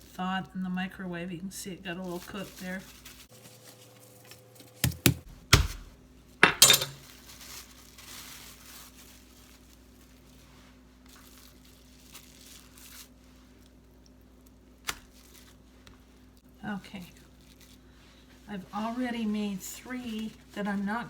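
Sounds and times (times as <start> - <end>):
plastic wrap crinkling: 1.9 - 6.0, 7.0 - 21.0
meat being pounded: 4.8 - 5.9.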